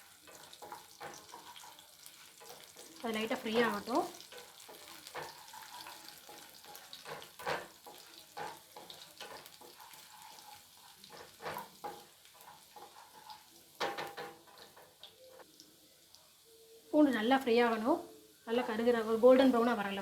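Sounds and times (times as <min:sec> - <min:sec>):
garlic sizzling in a pan: 0:00.0 - 0:20.0
utensil scraping and knocking pan: 0:00.3 - 0:14.9.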